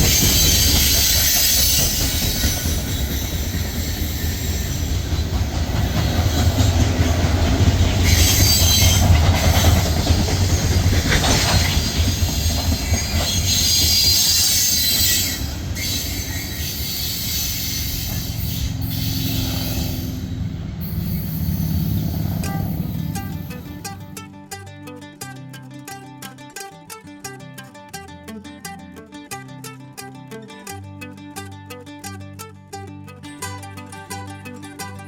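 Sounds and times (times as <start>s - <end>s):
train wheels squealing: 0.0s - 7.3s, 8.0s - 24.0s
train wheels rumbling on rail: 0.0s - 24.2s.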